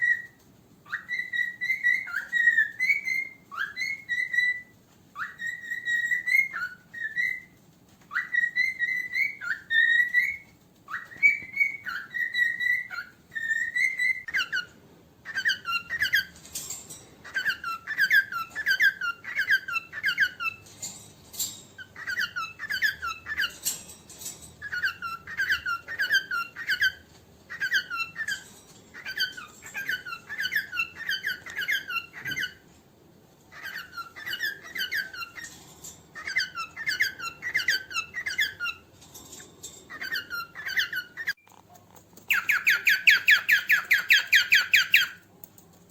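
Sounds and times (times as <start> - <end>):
rapid high bird chirps: 0.0 - 14.3, 42.2 - 45.3
cockatiel whistling: 0.0 - 14.6, 42.3 - 45.2.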